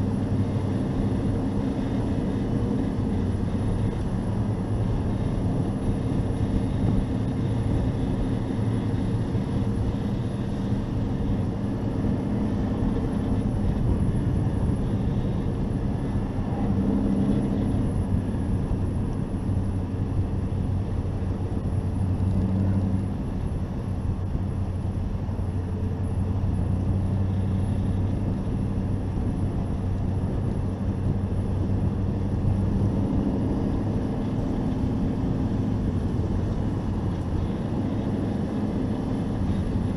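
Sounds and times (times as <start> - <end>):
model truck engine droning: 0.0 - 39.9
road noise: 0.0 - 39.9
wind noise: 0.0 - 39.9.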